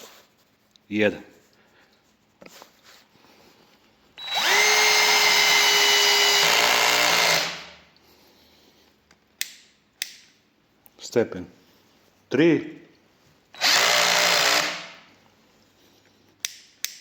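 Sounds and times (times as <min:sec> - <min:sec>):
cordless drill motor whining: 0:04.2 - 0:07.8, 0:13.6 - 0:14.9.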